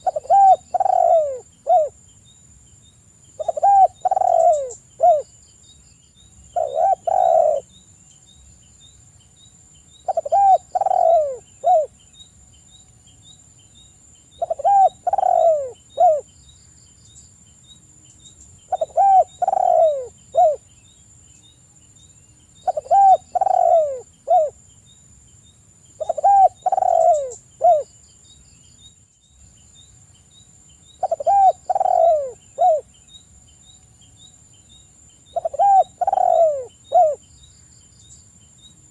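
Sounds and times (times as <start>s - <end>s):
dove cooing: 0.0s - 2.0s, 3.4s - 5.3s, 6.6s - 7.7s, 10.1s - 11.9s, 14.4s - 16.3s, 18.7s - 20.6s, 22.6s - 24.6s, 26.0s - 27.9s, 31.0s - 32.9s, 35.3s - 37.2s.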